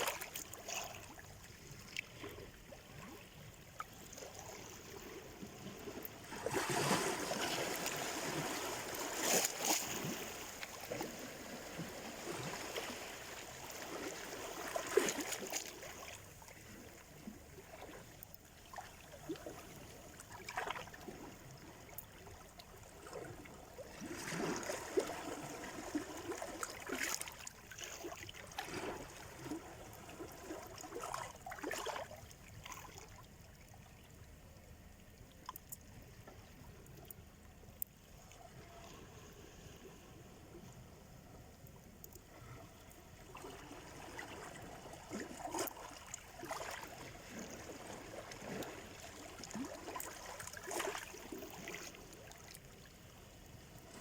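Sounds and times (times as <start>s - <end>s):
sea waves breaking on shore: 0.0s - 18.1s.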